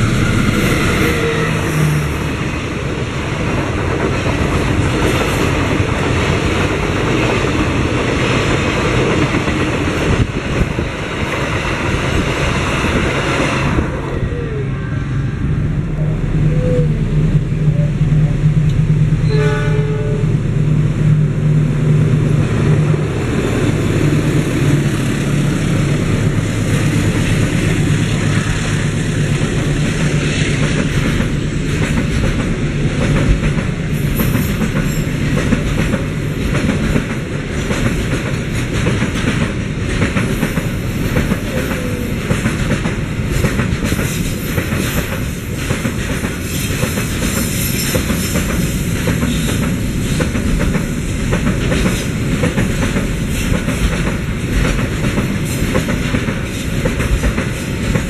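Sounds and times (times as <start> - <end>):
freight train wheels clattering: 22.6 - 58.0.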